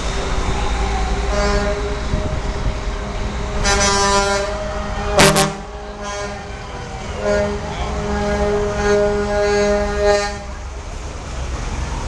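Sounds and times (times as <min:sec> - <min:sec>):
truck engines driving past: 0:00.0 - 0:12.0
horns honking: 0:01.3 - 0:10.7.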